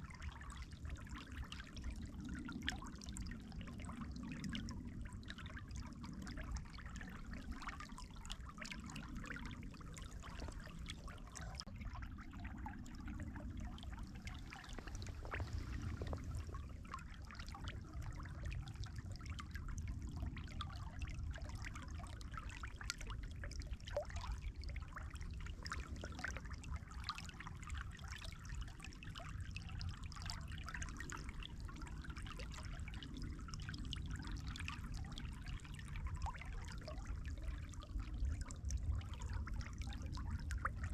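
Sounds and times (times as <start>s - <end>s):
water trickling and splashing: 0.0s - 40.9s
low rumble: 9.2s - 20.3s.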